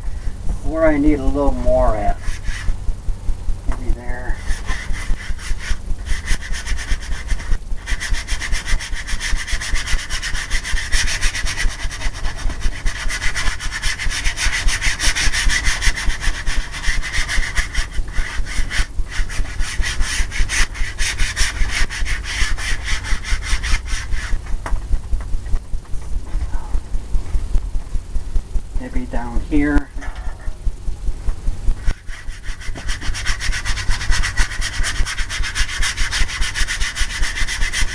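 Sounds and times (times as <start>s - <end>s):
brush scrubbing canvas: 0.9s - 2.8s, 3.8s - 24.5s, 31.8s - 37.9s.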